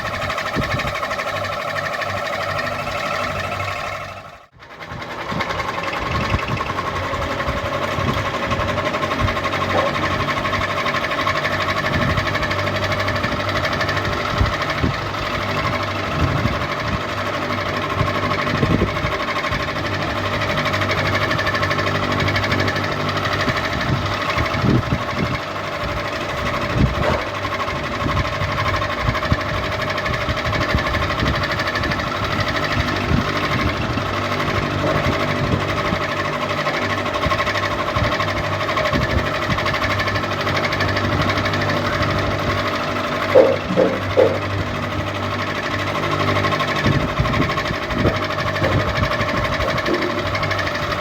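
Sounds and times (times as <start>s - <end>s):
ceiling fan motor hum: 0.0s - 51.0s
fan knocks or clicks: 43.3s - 44.8s, 46.8s - 51.0s.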